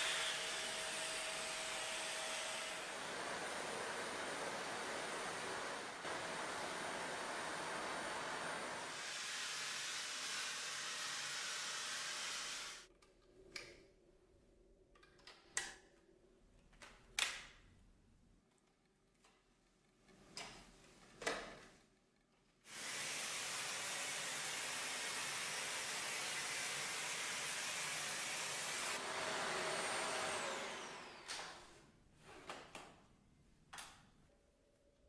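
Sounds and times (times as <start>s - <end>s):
vacuum cleaner running: 0.0s - 12.9s, 22.7s - 31.8s.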